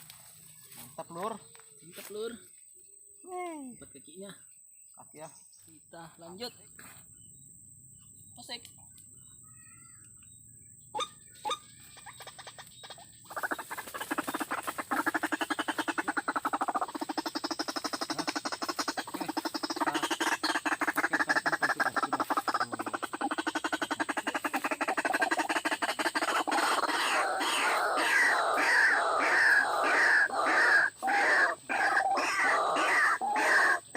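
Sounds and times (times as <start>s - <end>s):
waterhen harsh croaking calls: 10.9s - 33.9s.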